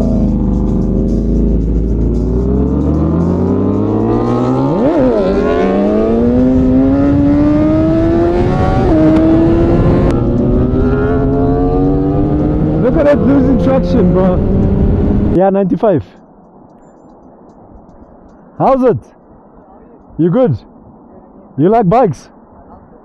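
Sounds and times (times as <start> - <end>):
motorcycle engine accelerating: 0.0 - 15.4.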